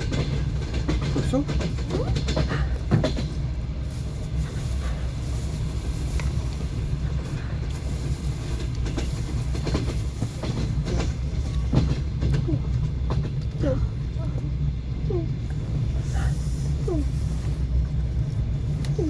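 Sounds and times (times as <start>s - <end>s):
wheels clattering over rail joints: 0.0s - 14.9s
train carriage rumble: 0.0s - 19.0s.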